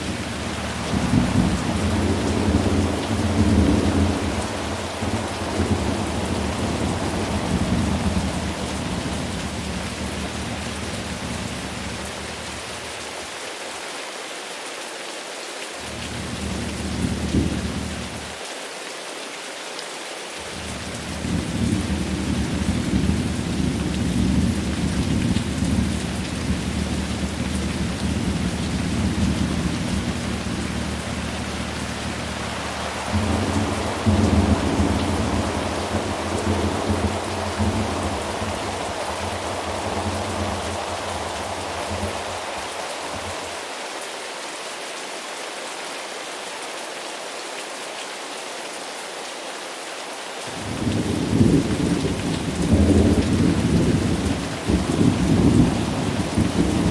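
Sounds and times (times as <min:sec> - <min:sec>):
rolling thunder: 0:00.0 - 0:12.2, 0:20.5 - 0:43.5, 0:50.6 - 0:56.9
steady rain: 0:00.0 - 0:56.9.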